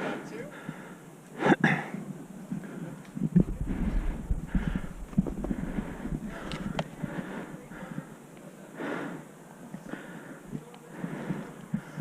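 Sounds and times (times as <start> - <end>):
footsteps thumping: 3.3 - 7.3.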